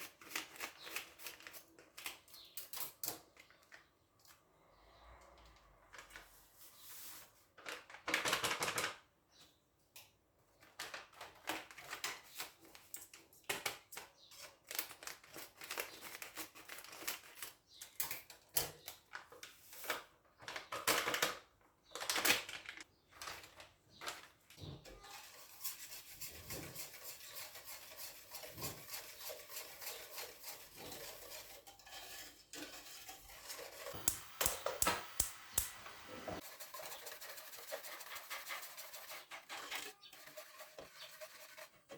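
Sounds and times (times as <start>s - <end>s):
steady hiss-like noise: 34.0s - 36.4s.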